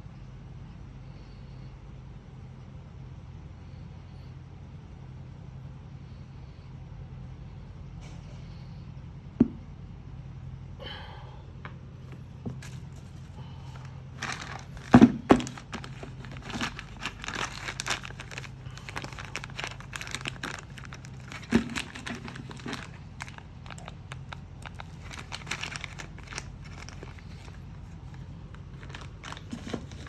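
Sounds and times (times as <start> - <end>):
steady low hum: 0.0 - 30.0
plastic packaging crinkling: 12.2 - 30.0.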